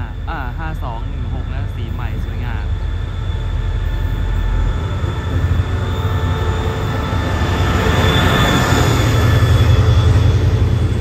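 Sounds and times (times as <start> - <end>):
passenger train rumbling past: 0.0 - 11.0.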